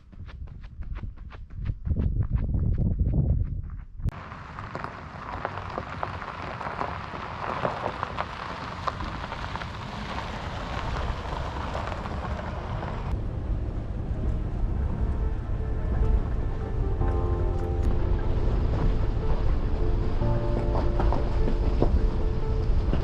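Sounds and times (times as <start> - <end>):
low thuds: 0.0 - 4.2
rain falling: 4.1 - 23.0.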